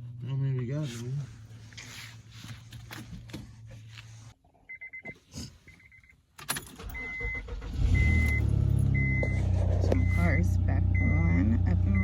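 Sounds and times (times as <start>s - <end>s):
car engine cranking and running: 6.4s - 12.0s
vehicle warning chime: 6.8s - 12.0s
steady beep: 7.0s - 12.0s.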